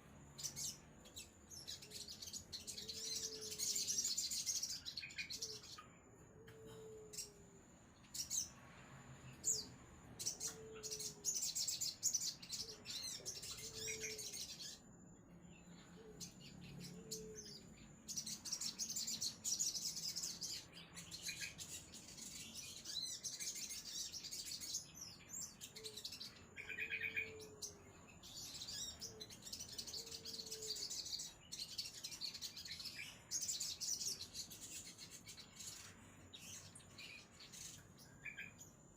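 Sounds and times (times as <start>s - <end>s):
bird twittering high-pitched song: 0.0s - 8.6s, 9.2s - 38.9s.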